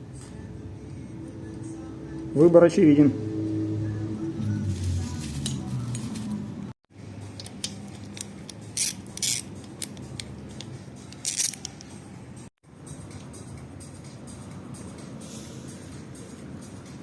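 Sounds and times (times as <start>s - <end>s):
metal parts clicking: 7.2s - 12.0s.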